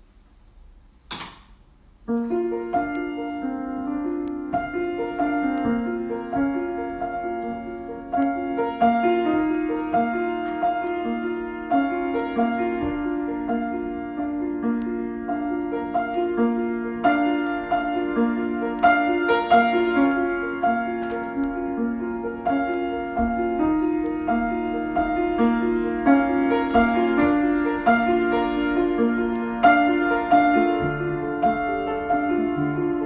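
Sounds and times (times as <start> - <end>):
solo piano: 0.0 - 33.0.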